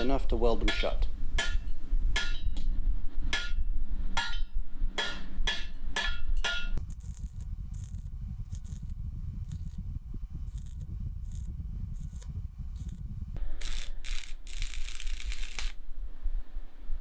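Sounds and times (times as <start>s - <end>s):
hammer striking steel plate: 0.7s - 2.6s, 3.3s - 3.6s, 4.2s - 8.0s
metal scraping strokes: 6.8s - 15.7s.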